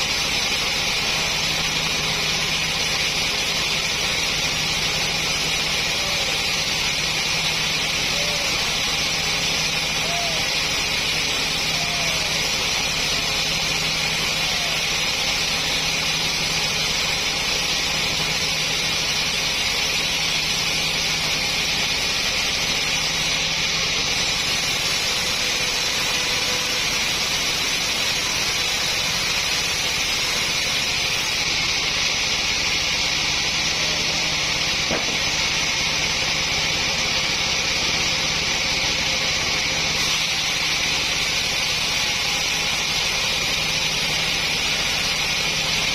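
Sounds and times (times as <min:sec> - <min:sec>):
sawmill machinery running: 0:00.0 - 0:45.9.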